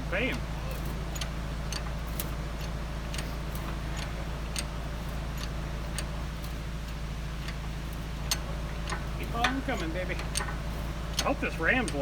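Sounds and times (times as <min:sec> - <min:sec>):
hydraulic ram clicking: 0:00.0 - 0:12.0
steady low hum: 0:00.0 - 0:12.0.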